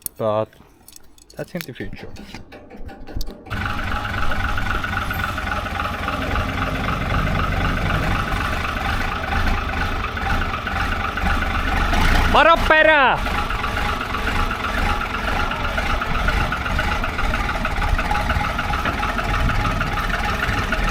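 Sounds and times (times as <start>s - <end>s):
vehicle engine idling: 0.0s - 20.9s.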